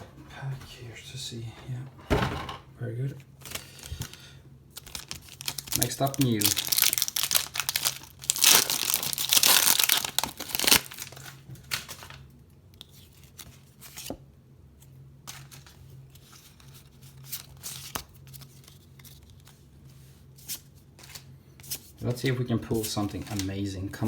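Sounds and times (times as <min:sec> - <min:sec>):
rustling of wrapper and cards: 0:03.3 - 0:14.2, 0:14.9 - 0:24.0
foil wrapper crinkling and tearing: 0:03.4 - 0:12.2, 0:15.3 - 0:19.5.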